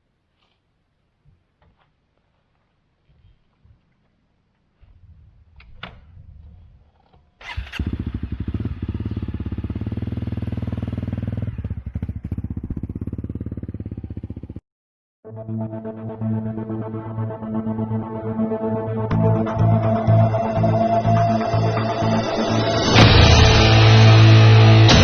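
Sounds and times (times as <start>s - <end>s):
engine starting and idling: 7.4s - 12.9s.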